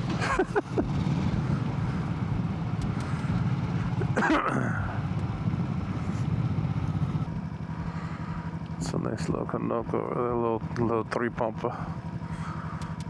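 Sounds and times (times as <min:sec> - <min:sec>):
wind and road noise: 0:00.0 - 0:09.0
motorcycle engine running: 0:00.0 - 0:13.0.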